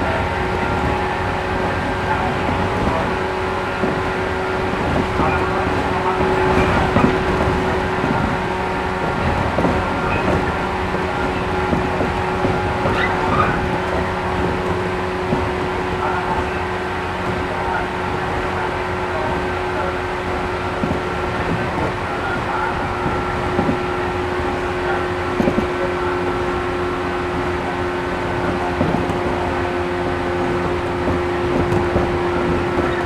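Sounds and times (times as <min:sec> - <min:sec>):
running gear hum: 0:00.0 - 0:33.0
train wheels rumbling on rails: 0:00.0 - 0:33.0.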